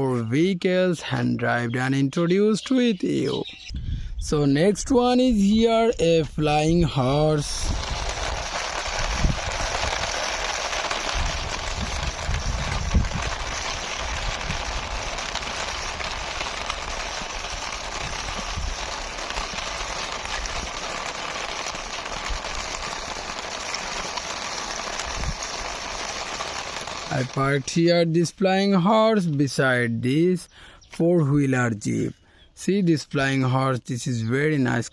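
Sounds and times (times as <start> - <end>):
plastic toy rolling and scraping: 7.4 - 27.8.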